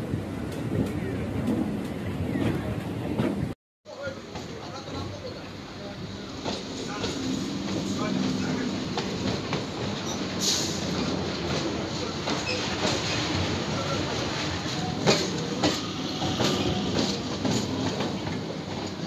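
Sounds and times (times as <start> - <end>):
train wheels clattering on rails: 0.4 - 19.0.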